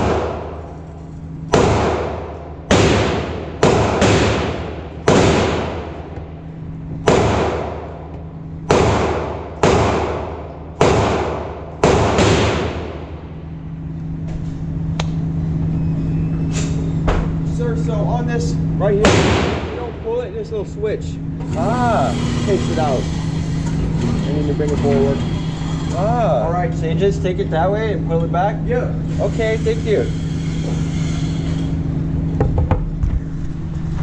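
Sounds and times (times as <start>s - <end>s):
echoing gunshots: 0.0s - 0.7s, 1.5s - 6.2s, 7.0s - 13.4s, 19.0s - 19.9s
steady low hum: 0.0s - 34.0s.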